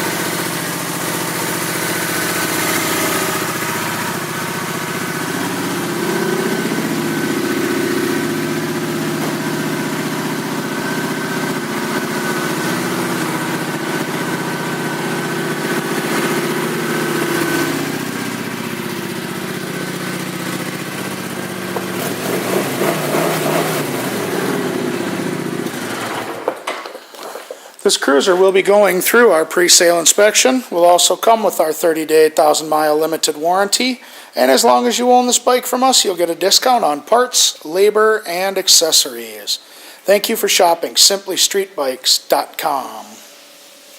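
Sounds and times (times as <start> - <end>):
motorcycle engine idling: 0.0 - 27.7.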